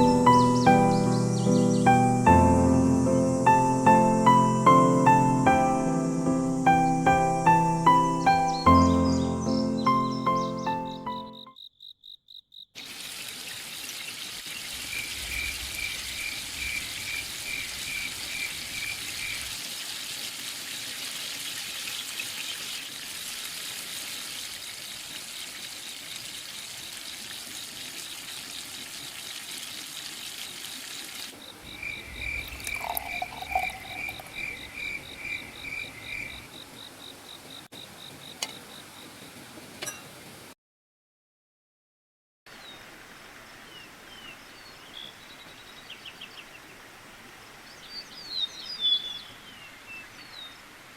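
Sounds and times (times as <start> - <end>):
insects trilling: 0.0 - 12.9, 14.6 - 19.6, 31.3 - 39.2
stream water rushing: 29.0 - 36.5.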